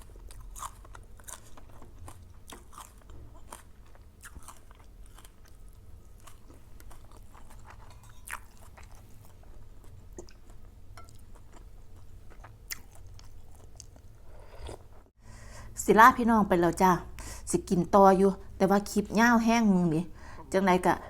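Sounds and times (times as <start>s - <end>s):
person chewing crunchy food: 0.0s - 14.9s.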